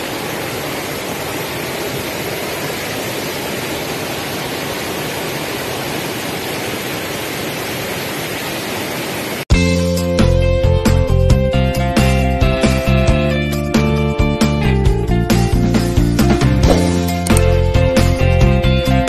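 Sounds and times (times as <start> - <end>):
creek water rushing: 0.0 - 9.5, 16.6 - 17.6.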